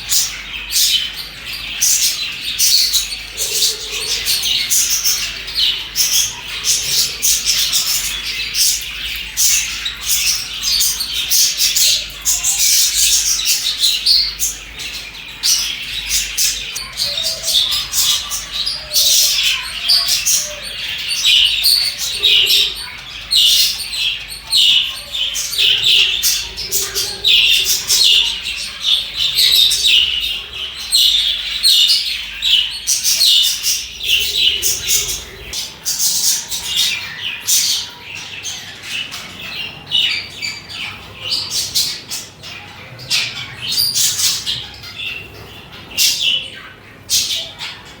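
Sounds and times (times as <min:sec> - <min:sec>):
budgerigars chirping: 0:00.0 - 0:48.0.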